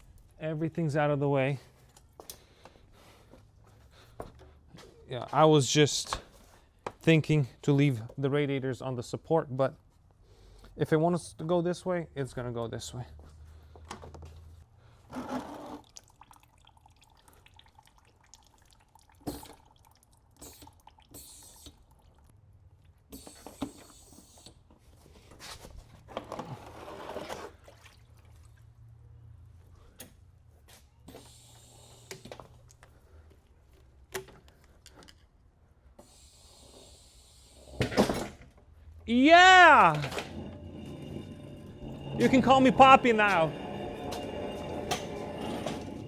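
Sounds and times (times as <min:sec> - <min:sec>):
faint drips: 0:15.9 - 0:23.0
low hum: 0:39.9 - 0:46.0.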